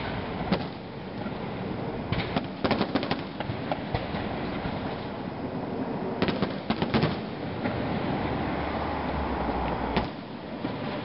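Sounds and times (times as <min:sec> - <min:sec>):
steady background noise: 0:00.0 - 0:11.0
fireworks bangs and cracks: 0:02.1 - 0:05.1, 0:06.2 - 0:07.8.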